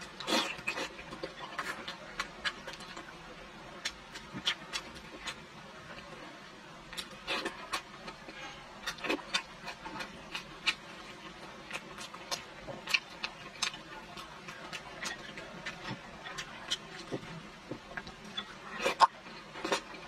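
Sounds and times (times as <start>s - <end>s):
person chewing with mouth clicks: 3.8s - 5.4s, 6.9s - 20.0s.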